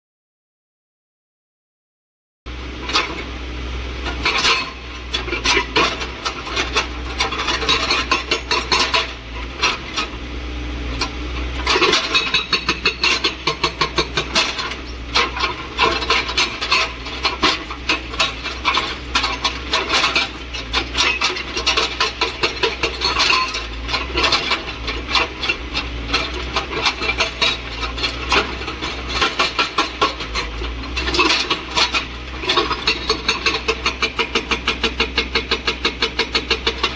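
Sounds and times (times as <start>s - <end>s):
excavator engine drone: 2.5s - 36.9s
hydraulic breaker hammering: 11.6s - 25.6s, 26.2s - 36.9s.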